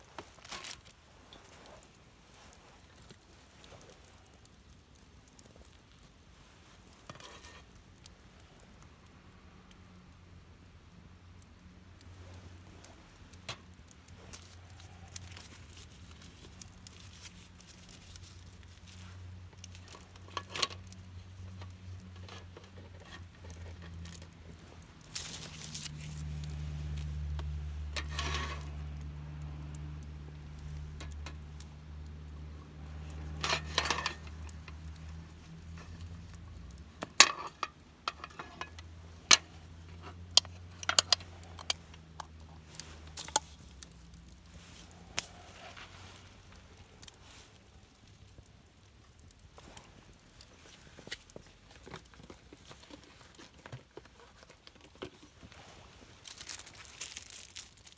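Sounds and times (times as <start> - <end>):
low steady rumble: 10.4 - 53.5
small objects clicking and knocking: 12.1 - 57.9.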